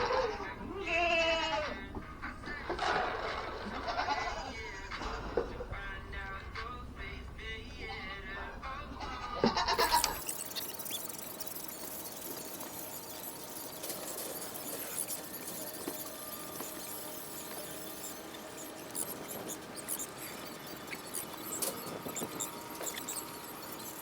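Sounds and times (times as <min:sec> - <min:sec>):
goat bleating: 0:00.0 - 0:02.0, 0:03.3 - 0:05.4, 0:08.4 - 0:10.2.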